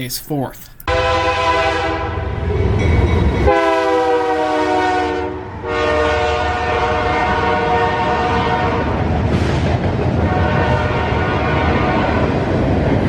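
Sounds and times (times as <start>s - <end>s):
locomotive air horn blasts: 0.9s - 2.4s, 3.5s - 8.9s, 10.2s - 12.3s.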